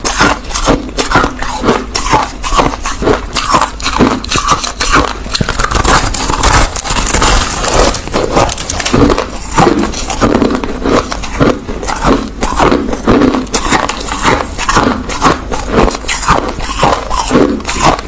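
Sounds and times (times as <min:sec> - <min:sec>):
person chewing crushed ice: 0:00.0 - 0:18.0.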